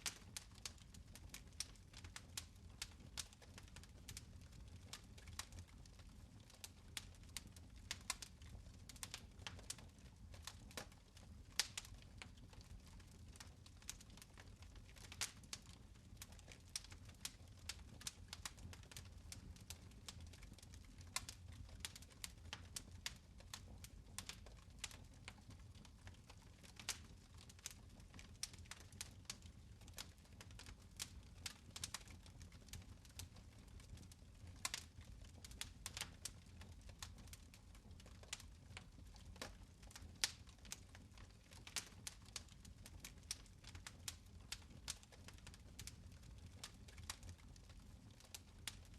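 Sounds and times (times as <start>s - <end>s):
fire crackling and popping: 0.0s - 48.9s.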